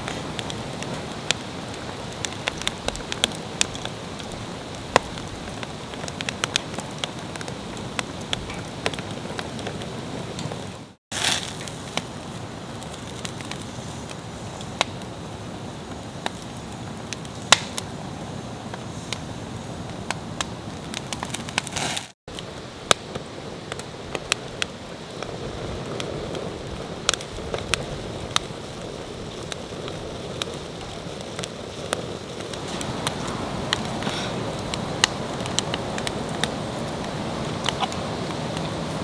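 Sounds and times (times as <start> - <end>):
campfire crackling and popping: 0.0 - 39.0
steady hiss: 0.0 - 39.0.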